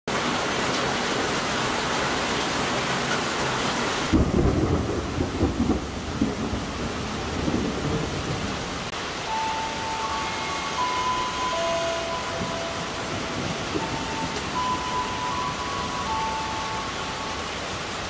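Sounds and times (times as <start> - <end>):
heavy rain hissing: 0.1 - 18.0
low rumbling thunder: 4.1 - 8.9.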